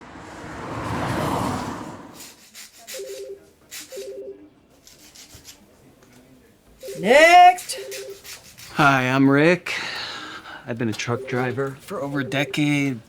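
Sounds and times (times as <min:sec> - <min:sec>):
electronic telephone ringing: 0:02.7 - 0:04.5, 0:06.8 - 0:09.1, 0:10.7 - 0:13.0.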